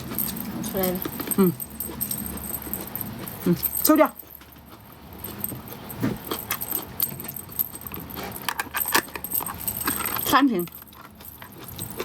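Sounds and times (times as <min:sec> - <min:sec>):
objects clicking and rattling: 0:05.2 - 0:12.0.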